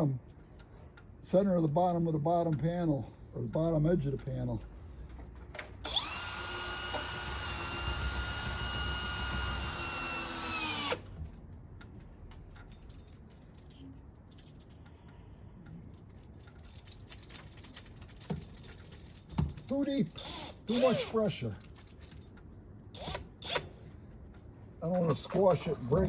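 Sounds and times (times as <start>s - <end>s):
faint clicks and jingles: 0.1s - 5.5s, 11.1s - 22.9s, 23.8s - 26.0s
cordless drill whining: 5.8s - 11.1s.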